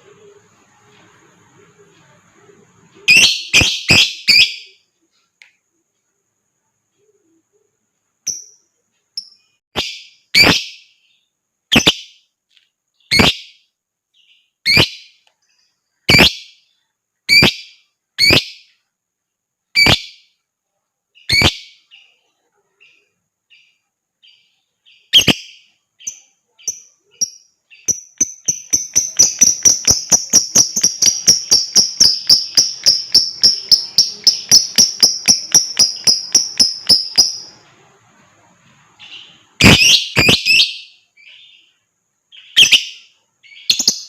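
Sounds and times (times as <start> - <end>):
faint bird chirps: 0.0 - 44.0
lovebird shrill calls: 9.8 - 10.8, 13.1 - 13.6, 14.6 - 15.1, 17.3 - 18.7, 21.2 - 21.8, 25.0 - 26.1, 26.7 - 37.6, 42.4 - 44.0.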